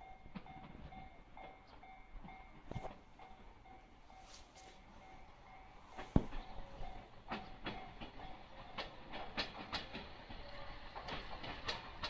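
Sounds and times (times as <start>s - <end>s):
railcar wheels clicking over joints: 0.0s - 12.0s.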